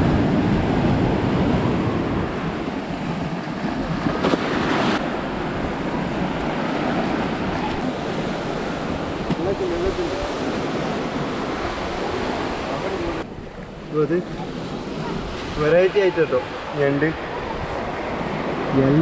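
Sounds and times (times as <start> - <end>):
waves breaking on shore: 0.0 - 19.0
wind buffeting microphone: 0.0 - 19.0.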